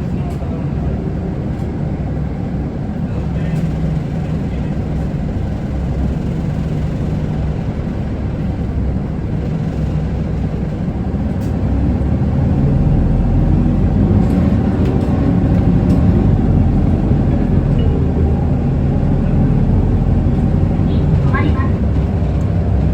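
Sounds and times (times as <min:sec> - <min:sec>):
bus diesel engine: 0:00.0 - 0:22.9
road noise: 0:07.4 - 0:22.9.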